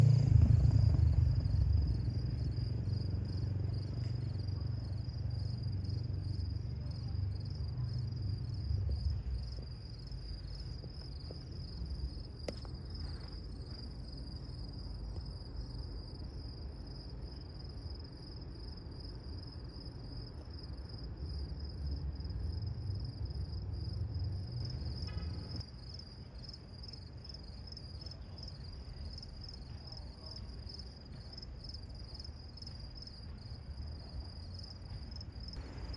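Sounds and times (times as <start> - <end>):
diesel locomotive engine rumble: 0.0 - 26.8, 28.2 - 35.9
crickets chirping: 0.0 - 35.9.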